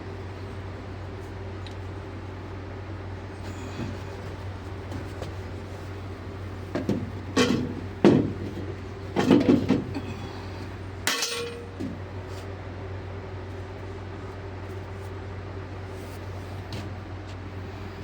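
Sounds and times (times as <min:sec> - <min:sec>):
machinery hum: 0:00.0 - 0:18.0
metal tools clanking: 0:07.4 - 0:07.8, 0:11.0 - 0:11.9.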